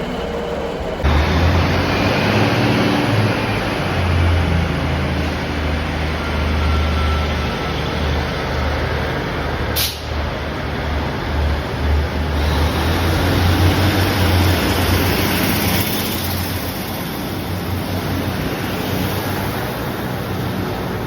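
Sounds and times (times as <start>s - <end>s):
train rumbling: 0.0s - 21.0s
short hiss: 9.8s - 10.1s.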